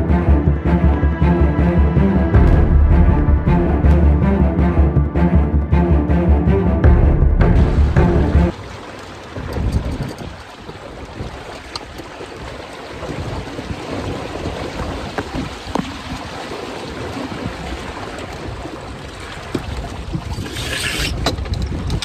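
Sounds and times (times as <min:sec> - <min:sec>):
water rushing along hulls: 0:00.0 - 0:22.0
wind buffeting microphone: 0:09.2 - 0:22.0.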